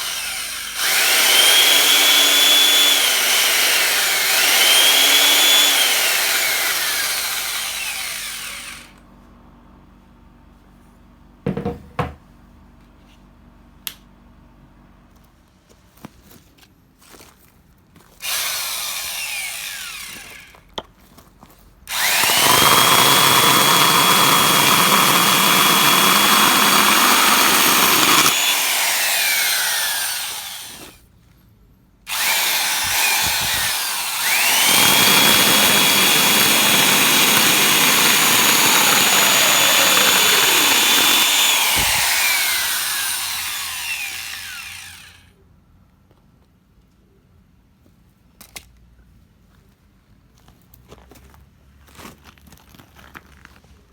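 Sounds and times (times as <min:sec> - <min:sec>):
electric chainsaw motor whine: 0:00.0 - 0:09.0, 0:18.2 - 0:20.6, 0:21.9 - 0:31.0, 0:32.1 - 0:45.3.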